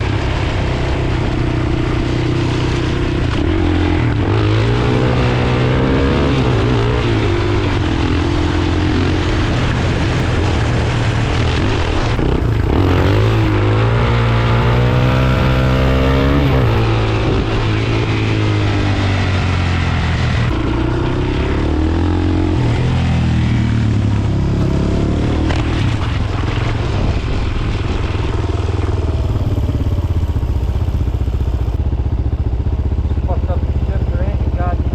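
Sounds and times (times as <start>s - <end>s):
motorcycle engine running: 0.0s - 34.9s
steady rushing noise: 0.0s - 34.9s.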